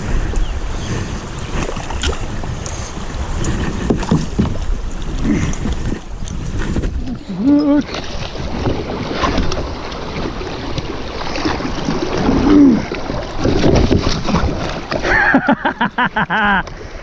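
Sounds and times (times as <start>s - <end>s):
water rushing against kayak hull: 0.0s - 17.0s
wind noise on microphone: 0.0s - 17.0s.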